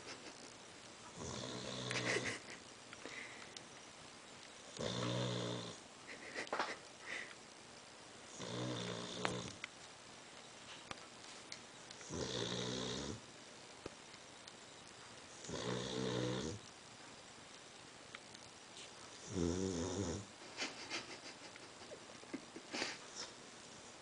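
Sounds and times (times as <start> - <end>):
dog snoring: 1.1 - 2.2, 4.7 - 5.8, 8.3 - 9.6, 12.0 - 13.2, 15.4 - 16.6, 19.2 - 20.3.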